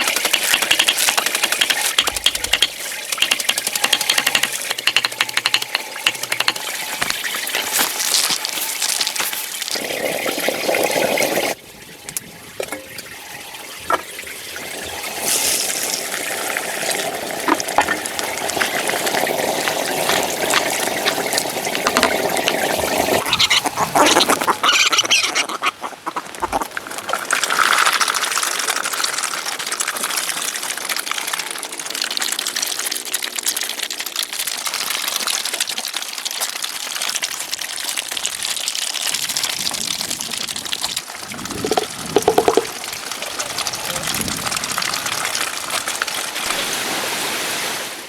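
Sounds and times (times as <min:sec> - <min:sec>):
water running: 0:00.0 - 0:48.0
animal calls: 0:23.0 - 0:26.9.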